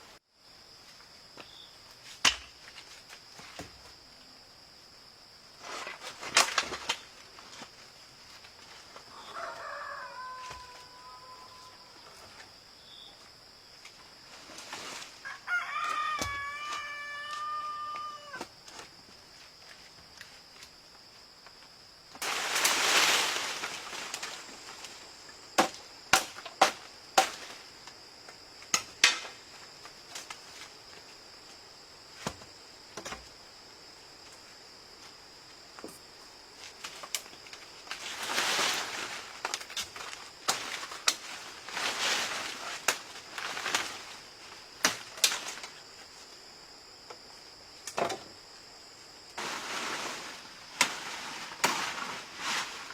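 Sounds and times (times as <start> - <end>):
high insect drone: 0.0 - 52.9.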